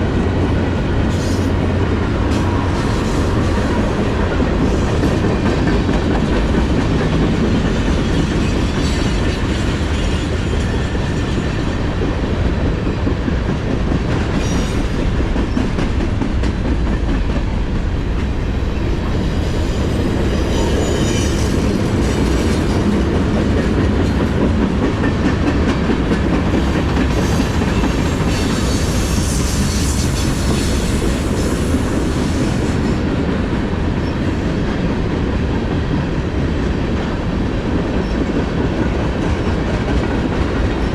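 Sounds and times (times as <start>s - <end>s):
train rumble: 0.0s - 40.9s
wheels clacking over rails: 18.2s - 31.4s.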